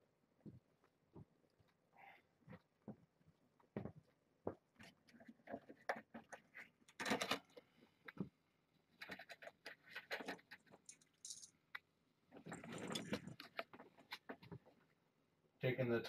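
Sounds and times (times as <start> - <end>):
rustling of handled objects: 0.4 - 15.0
light clinking: 10.8 - 11.6.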